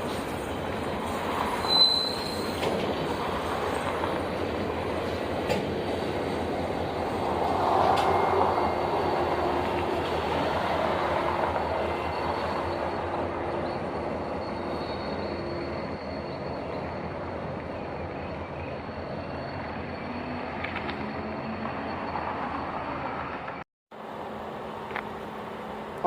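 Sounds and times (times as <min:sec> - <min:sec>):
train rolling on rails: 0:00.0 - 0:26.0
wheel squeal: 0:01.4 - 0:03.2, 0:07.5 - 0:23.2.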